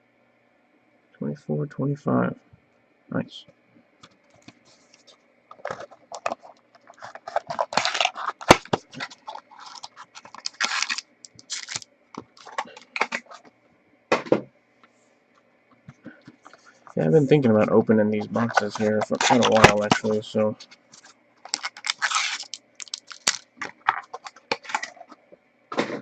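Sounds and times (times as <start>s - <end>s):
cards scraping and rustling: 4.3s - 13.5s, 16.2s - 25.2s.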